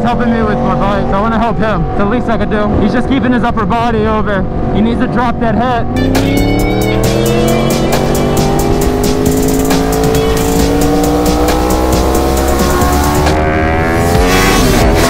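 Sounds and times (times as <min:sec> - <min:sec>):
motorcycle engine revving under load: 0:05.9 - 0:15.0.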